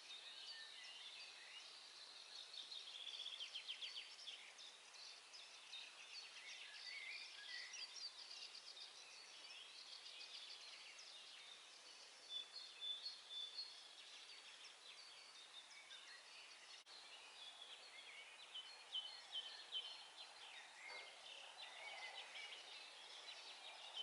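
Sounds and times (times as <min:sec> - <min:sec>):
songbirds singing and chirping: 0:00.0 - 0:24.0.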